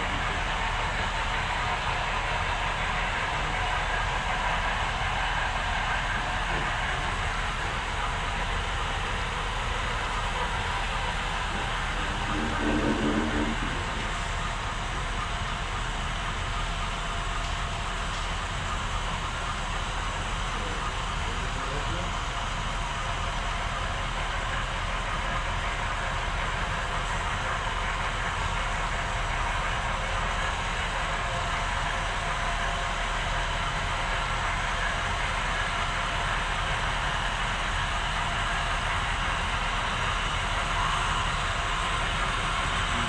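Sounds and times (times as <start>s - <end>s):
model train locomotive hum: 0.0s - 43.0s
wheels rattling on track: 0.0s - 43.0s.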